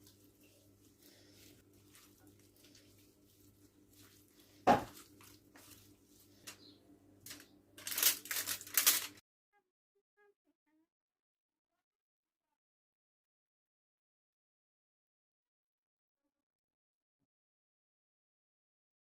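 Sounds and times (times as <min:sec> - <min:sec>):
scraping and rustling: 0:00.0 - 0:09.2.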